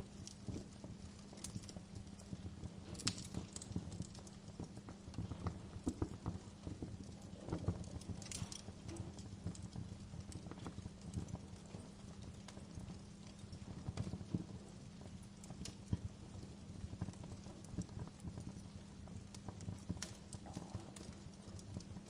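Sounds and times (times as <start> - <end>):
low steady fire rumble: 0.0 - 22.0
wood fire crackling: 0.0 - 22.0.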